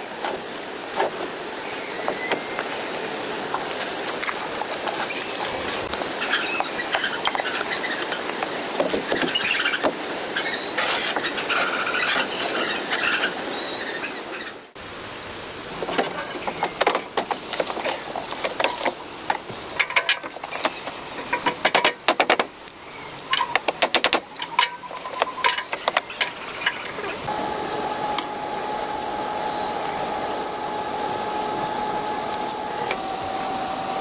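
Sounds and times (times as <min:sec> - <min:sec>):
irregular sharp clicks and knocks: 0:15.8 - 0:27.0
high-pitched squeaking: 0:16.0 - 0:34.0.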